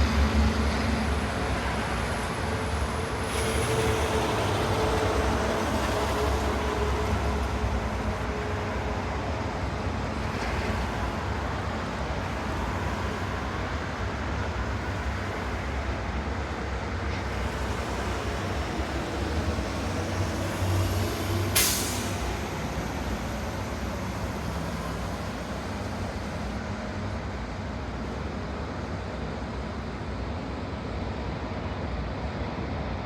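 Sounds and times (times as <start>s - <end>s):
distant city traffic: 0.0s - 33.0s
air brake hiss: 21.2s - 23.9s.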